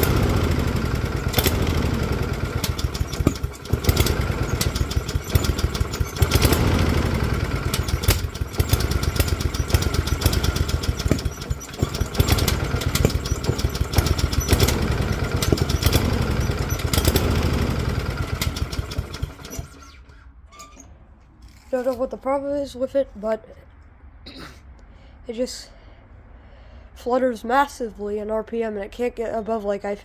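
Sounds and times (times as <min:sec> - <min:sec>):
lawnmower engine running unsteadily: 0:00.0 - 0:20.0.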